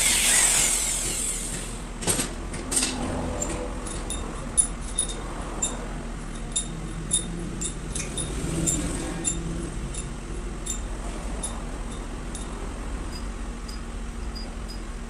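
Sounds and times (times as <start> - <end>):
steady low hum: 3.2 - 15.0
metallic clinks of tools: 3.4 - 14.9.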